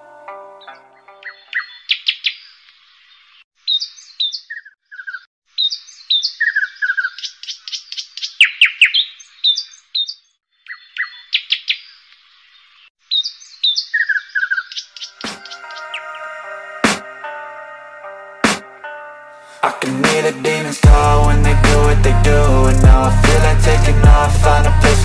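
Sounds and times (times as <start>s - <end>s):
birdsong chirps and trills: 0.6s - 17.5s.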